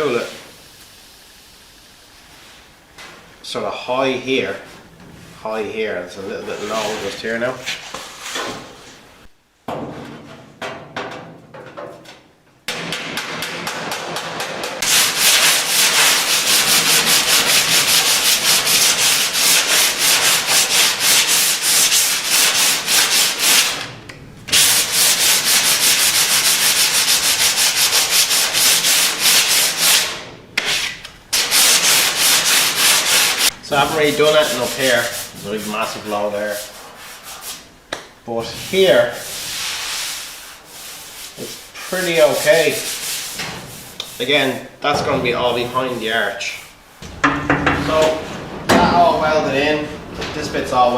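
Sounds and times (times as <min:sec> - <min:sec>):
sanding strokes on steel panel: 0:14.8 - 0:23.8, 0:24.5 - 0:37.6, 0:38.5 - 0:44.6.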